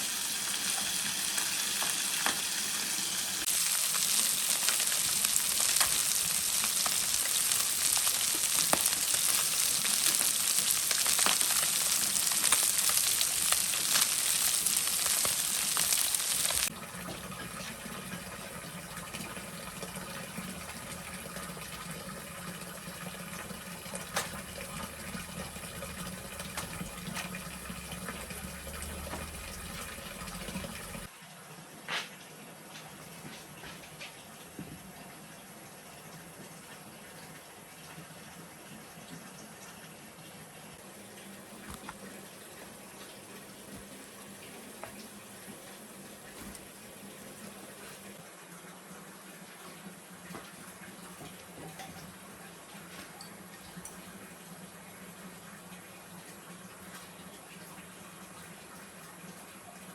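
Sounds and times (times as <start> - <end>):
food sizzling in hot oil: 0.0 - 16.8, 23.4 - 31.1.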